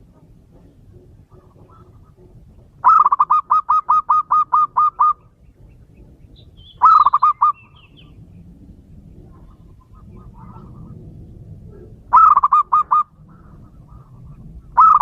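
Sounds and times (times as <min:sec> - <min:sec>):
dove cooing: 0:00.0 - 0:15.0
small bird chirps: 0:04.9 - 0:08.2.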